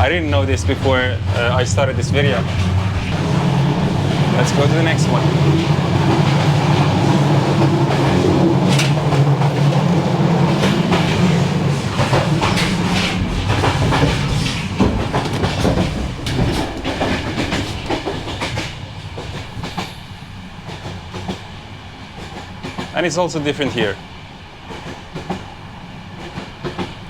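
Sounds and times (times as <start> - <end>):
train wheels rumbling on rails: 0.0 - 27.0
clattering knocks: 0.7 - 19.9.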